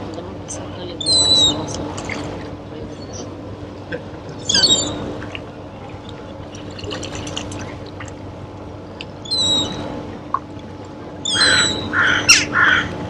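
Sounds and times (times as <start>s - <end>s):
water lapping and dripping: 0.0s - 13.0s
seagull call: 1.0s - 2.2s, 4.4s - 5.1s, 9.2s - 9.9s, 11.2s - 13.0s.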